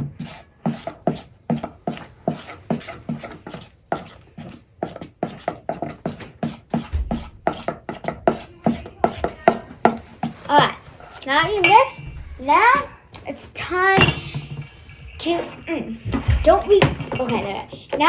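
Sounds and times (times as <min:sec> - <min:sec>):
utensil stirring thick mix in bowl: 0:00.0 - 0:13.0
utensil knocking against bowl: 0:04.9 - 0:10.4.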